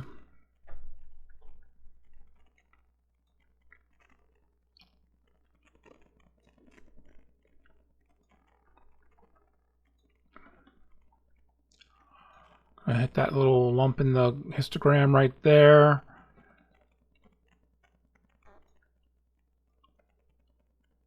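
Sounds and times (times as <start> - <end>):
computer mouse clicks: 1.3 - 12.7.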